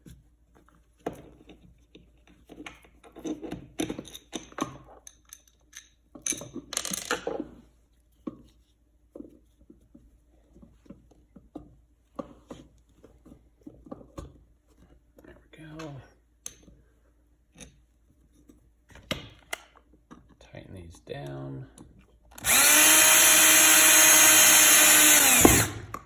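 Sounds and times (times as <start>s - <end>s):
small metal clicks and clinks: 3.2s - 7.2s
screws scraping: 22.4s - 25.9s.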